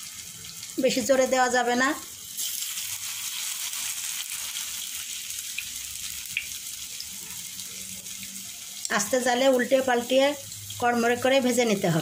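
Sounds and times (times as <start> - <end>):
battered vegetables sizzling in oil: 0.0 - 12.0.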